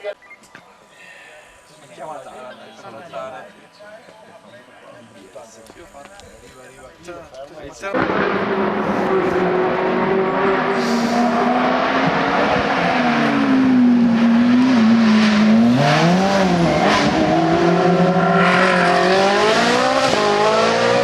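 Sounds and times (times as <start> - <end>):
race car engine accelerating: 7.9 - 21.0.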